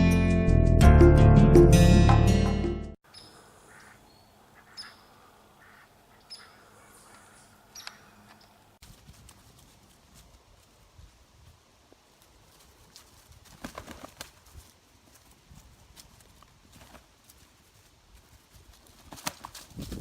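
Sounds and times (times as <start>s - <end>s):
ducks quacking: 3.6s - 8.1s.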